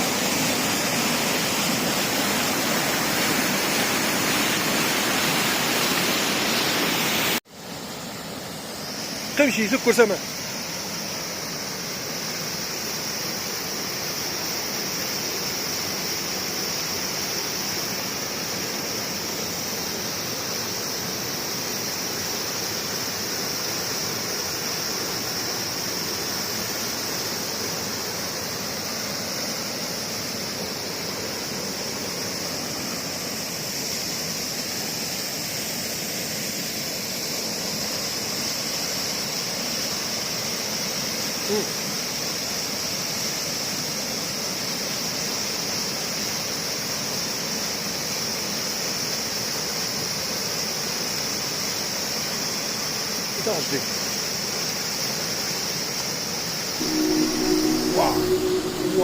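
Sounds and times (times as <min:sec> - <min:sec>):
stream rushing: 0:00.0 - 0:17.8
high-pitched hiss: 0:05.0 - 0:51.2, 0:51.8 - 0:59.0.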